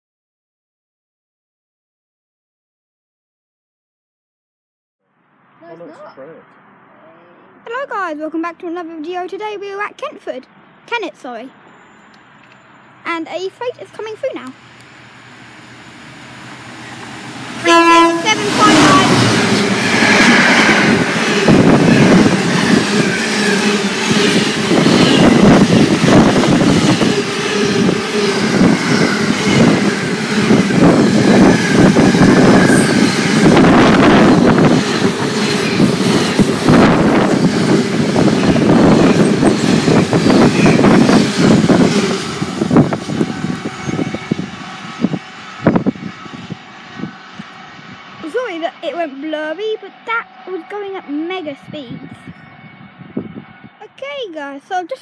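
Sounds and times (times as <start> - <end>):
freight train rumbling: 11.0 - 55.0.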